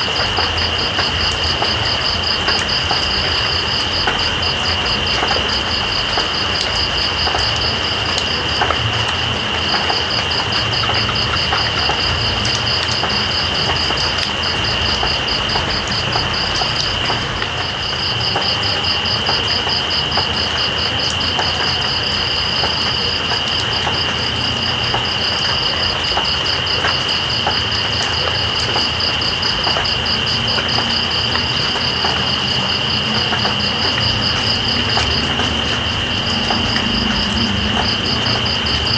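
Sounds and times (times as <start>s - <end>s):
rain hissing: 0.0s - 38.9s
raindrops ticking: 0.0s - 38.9s
insect high drone: 24.4s - 38.9s.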